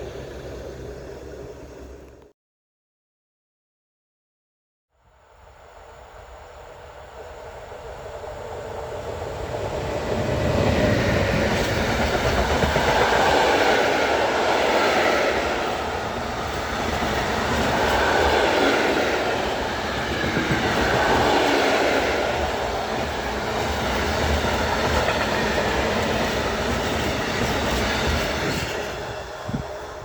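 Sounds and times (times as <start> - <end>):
train passing: 0.0 - 2.3, 5.2 - 30.0
wheels clattering on rails: 10.2 - 29.1.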